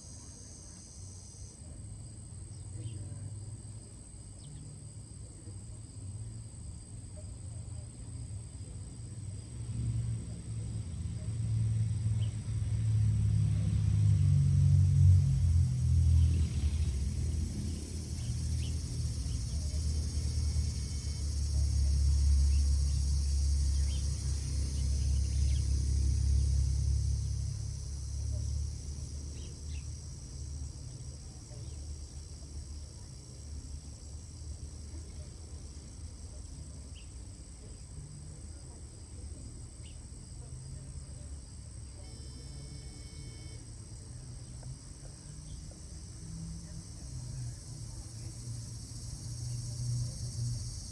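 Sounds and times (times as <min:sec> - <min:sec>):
high-pitched insect chorus: 0:00.0 - 0:50.9
faint chirps: 0:41.8 - 0:43.8
high insect-like drone: 0:42.0 - 0:43.8
brief held tone: 0:42.1 - 0:43.6.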